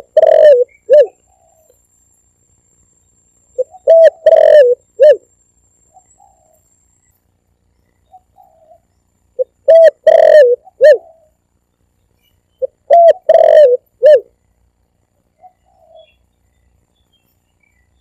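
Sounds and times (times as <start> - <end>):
dove cooing: 0.0 - 1.8, 3.6 - 5.3, 5.9 - 6.6, 8.0 - 11.4, 12.6 - 14.4, 15.4 - 16.2.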